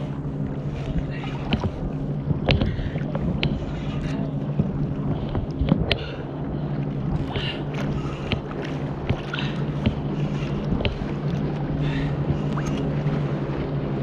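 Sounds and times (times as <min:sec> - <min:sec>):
steady low hum: 0:00.0 - 0:14.0
water and handling noise: 0:00.0 - 0:14.0
sharp clicks and knocks: 0:08.2 - 0:11.0.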